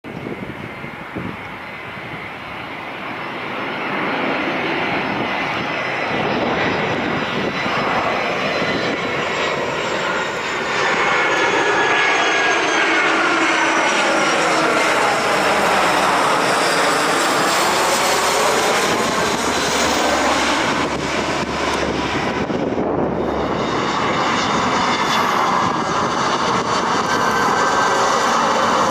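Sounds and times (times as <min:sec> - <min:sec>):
airplane engines passing overhead: 0:00.0 - 0:28.9.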